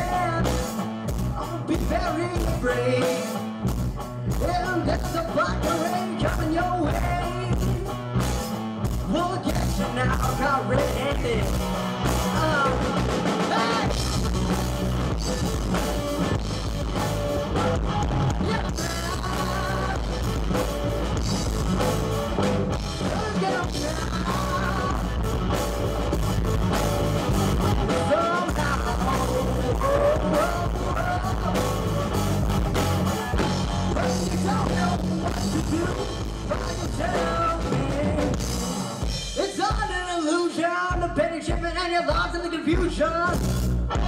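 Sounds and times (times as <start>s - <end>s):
live rock band playing: 0.0s - 44.0s
wavering melodic lead line: 4.3s - 39.4s.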